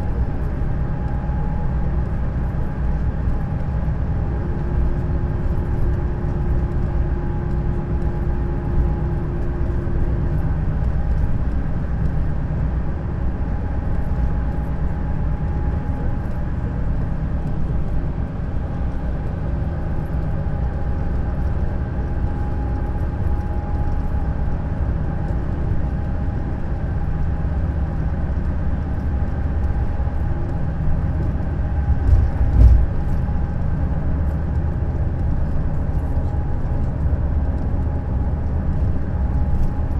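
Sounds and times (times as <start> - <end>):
bus engine and tyres rumbling: 0.0 - 39.9
vehicle thump over bump: 31.9 - 33.2.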